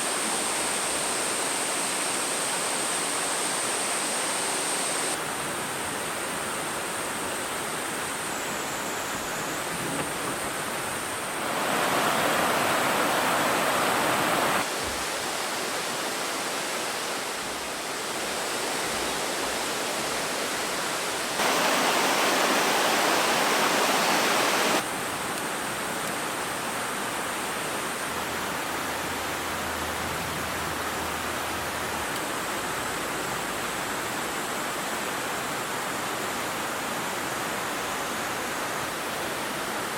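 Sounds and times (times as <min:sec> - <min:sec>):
stream rushing over rocks: 0:00.0 - 0:05.4, 0:10.5 - 0:29.6.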